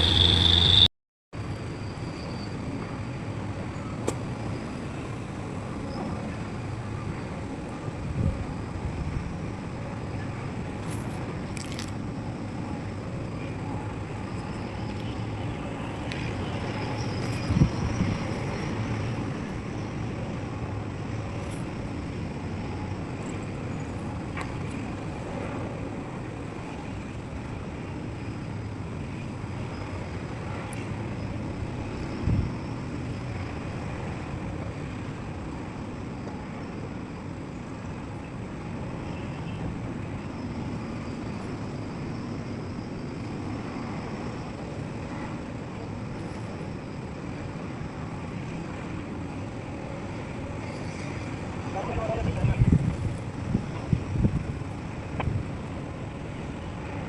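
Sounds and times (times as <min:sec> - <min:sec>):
excavator diesel engine rumbling: 0:00.0 - 0:00.9.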